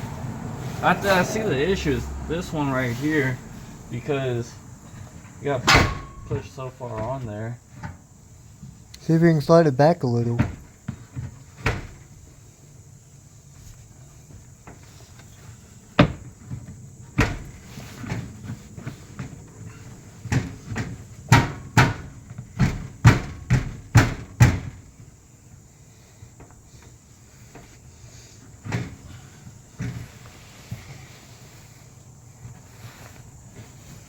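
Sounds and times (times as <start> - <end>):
metal clunks from exhaust pipe: 5.2 - 7.1.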